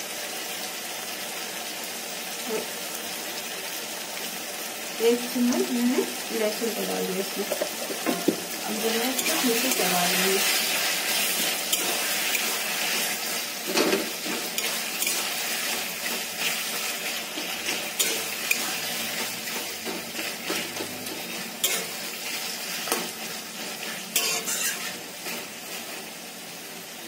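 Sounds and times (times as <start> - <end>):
food sizzling in oil: 0.0 - 27.0
spatula stirring and scraping: 7.4 - 26.3.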